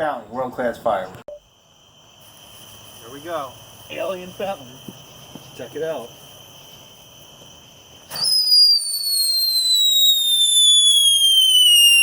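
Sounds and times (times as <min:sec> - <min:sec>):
firework burst: 0:05.9 - 0:12.0
firework whistle falling in pitch: 0:08.1 - 0:12.0.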